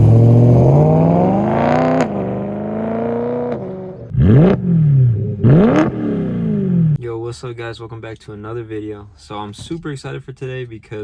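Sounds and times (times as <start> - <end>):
car engine revving: 0.0 - 7.0.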